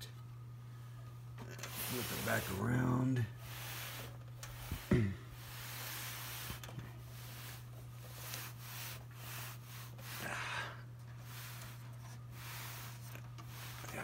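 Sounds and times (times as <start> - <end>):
rubbing and scuffing of metal fan: 1.4 - 14.0
loud scrape: 1.7 - 2.6.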